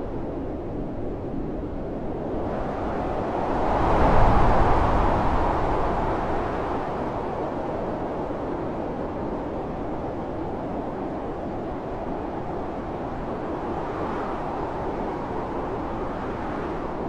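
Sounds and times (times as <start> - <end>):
blizzard wind blowing hard: 0.0 - 17.0.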